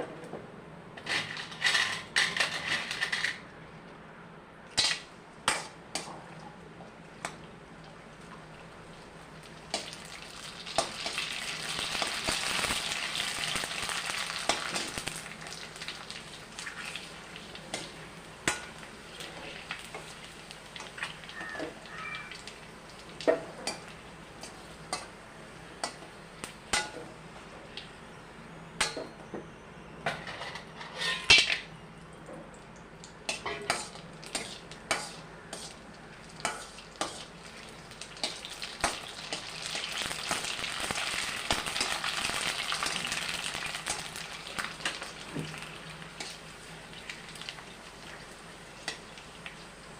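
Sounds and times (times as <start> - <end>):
oil sizzling in a pan: 8.2 - 27.0, 33.0 - 49.9.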